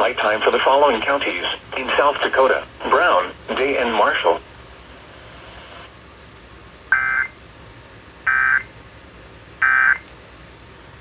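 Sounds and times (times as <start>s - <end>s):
faint radio hiss: 0.0s - 6.0s
warbling alert data bursts: 6.9s - 7.4s, 8.3s - 8.7s, 9.6s - 10.0s.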